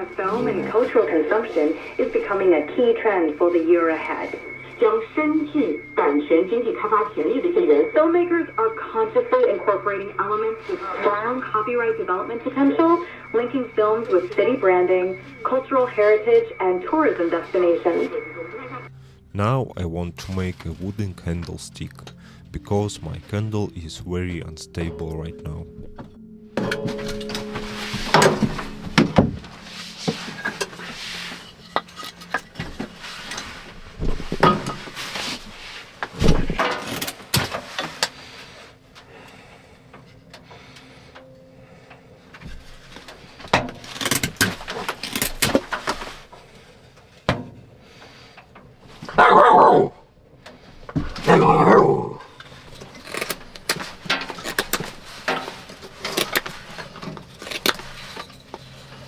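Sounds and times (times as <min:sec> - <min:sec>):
puppy barking: 0:49.1 - 0:50.0, 0:51.2 - 0:52.2.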